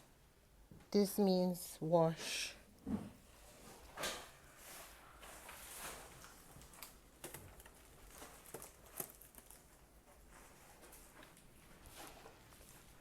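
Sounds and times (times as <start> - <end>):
small clicks and rustles: 3.7 - 13.0.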